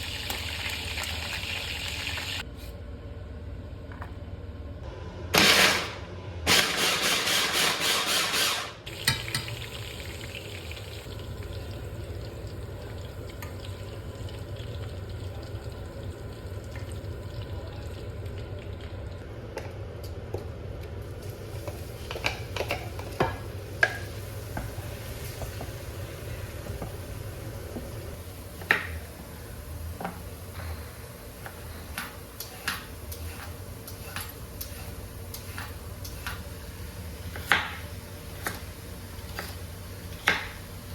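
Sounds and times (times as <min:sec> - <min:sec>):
food sizzling in a pan: 0:00.0 - 0:02.4.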